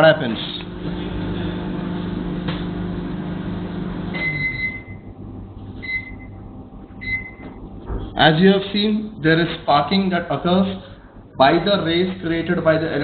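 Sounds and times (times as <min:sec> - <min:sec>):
microwave oven humming: 0:00.0 - 0:13.0
microwave oven beeping: 0:00.6 - 0:08.4.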